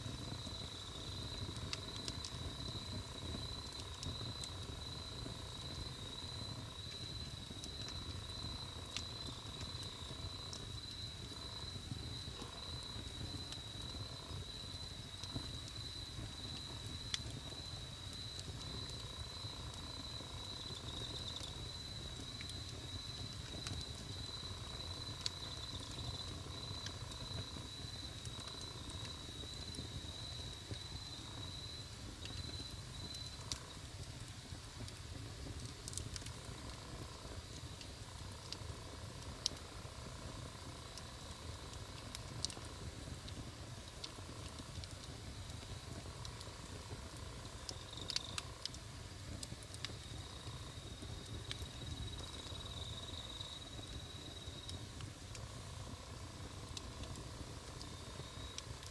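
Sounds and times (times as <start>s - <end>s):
campfire rumble and pops: 0.0s - 58.9s.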